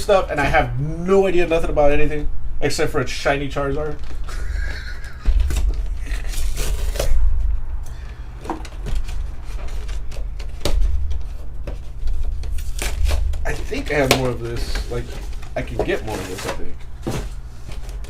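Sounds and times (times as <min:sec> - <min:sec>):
packaging rustling and tearing: 0:05.2 - 0:07.6, 0:08.3 - 0:18.0.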